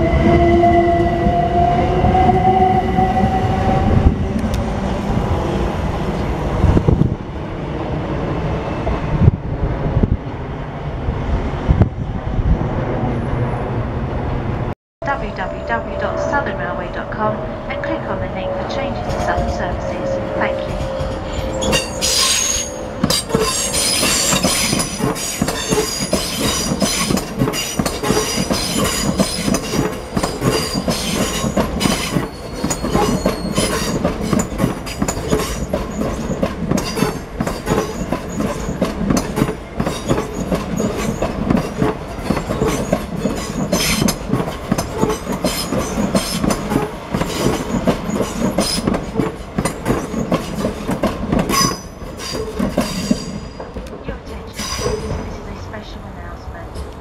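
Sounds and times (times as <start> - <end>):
high wheel squeal: 20.0 - 38.8, 51.5 - 53.6, 54.5 - 55.3
train wheels clattering on rails: 20.5 - 55.9.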